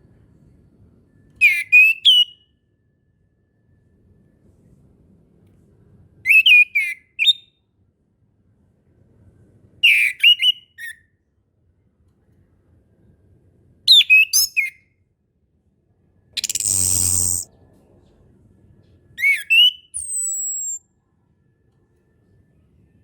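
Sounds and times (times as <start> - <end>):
thrush whistled song: 1.4 - 2.6, 6.3 - 7.6, 13.9 - 14.8, 16.4 - 17.5, 19.2 - 20.9.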